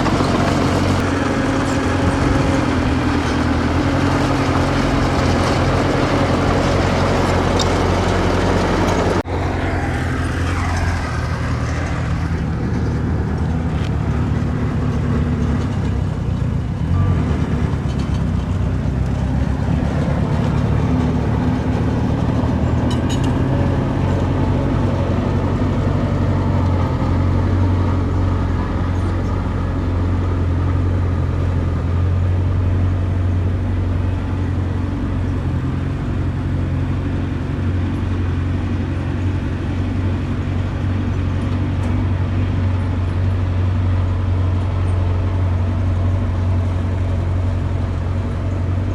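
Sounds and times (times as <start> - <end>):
earthmoving machinery diesel engines: 0.0 - 48.9.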